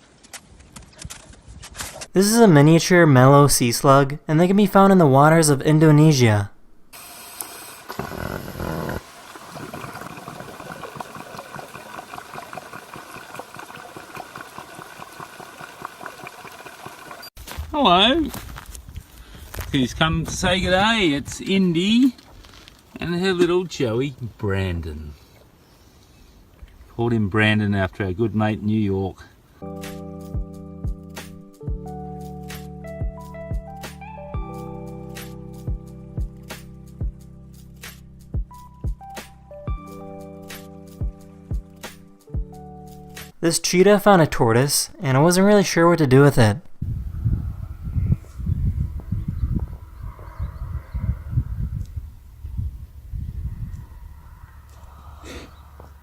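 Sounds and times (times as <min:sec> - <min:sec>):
rushing water noise: 0:07.0 - 0:17.3.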